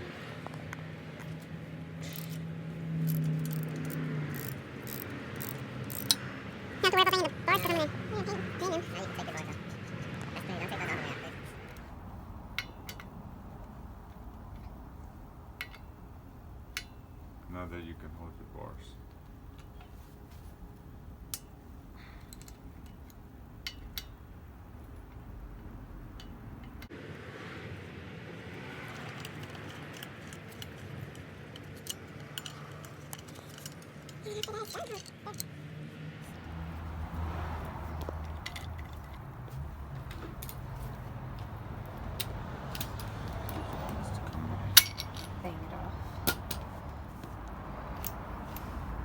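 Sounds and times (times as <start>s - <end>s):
metallic clicks of hand tools: 2.0s - 2.4s, 3.0s - 6.3s, 12.5s - 13.2s, 15.6s - 16.0s, 16.7s - 17.0s, 21.3s - 24.2s, 29.0s - 35.5s, 38.0s - 39.3s, 39.9s - 45.4s, 46.2s - 46.7s, 47.3s - 48.8s.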